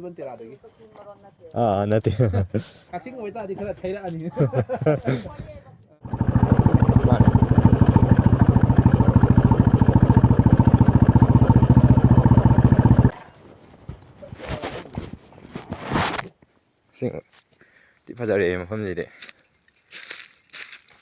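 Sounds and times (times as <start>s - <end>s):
motorcycle engine running: 6.0s - 13.2s.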